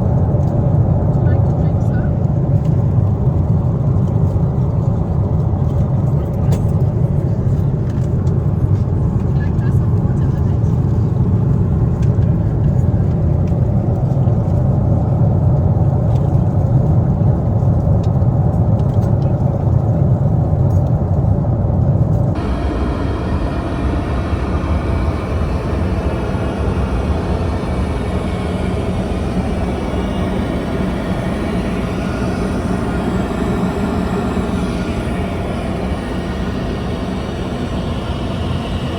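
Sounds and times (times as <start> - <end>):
airliner cabin engine rumble: 22.3 - 38.9.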